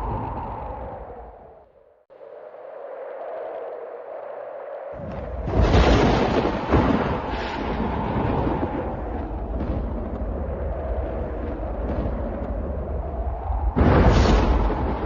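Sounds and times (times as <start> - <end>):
rolling rumble of thunder: 5.0 - 15.0
thunderclap: 5.0 - 15.0.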